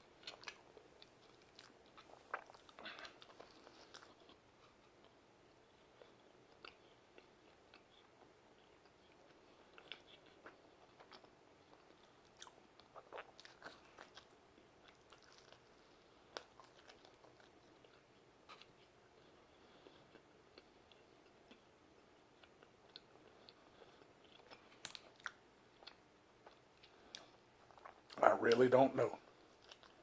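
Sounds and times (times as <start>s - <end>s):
chewing mouth clicks and smacks: 0.2s - 28.2s, 29.2s - 30.0s.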